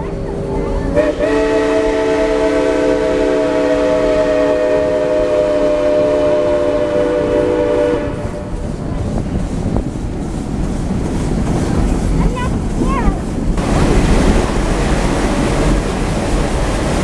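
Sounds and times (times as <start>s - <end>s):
low rumble of train: 0.0s - 17.0s
steam locomotive chime whistle: 0.9s - 8.6s.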